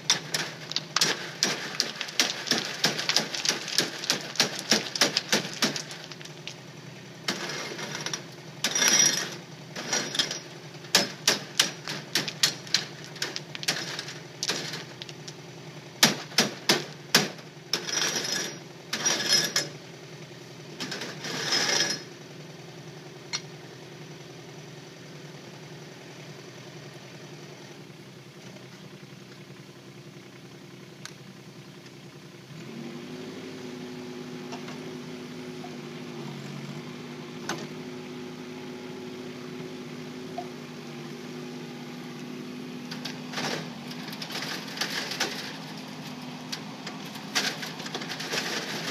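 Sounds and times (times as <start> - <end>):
stones and steel clattering: 0.0 - 6.7, 7.3 - 19.8, 20.8 - 22.1, 42.9 - 48.9
diesel engine running: 0.0 - 48.9.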